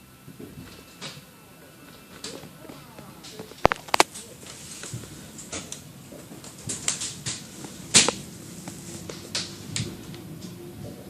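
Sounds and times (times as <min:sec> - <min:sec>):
sharp clicks and knocks: 0:03.3 - 0:04.2
rail car low hum: 0:04.2 - 0:11.0.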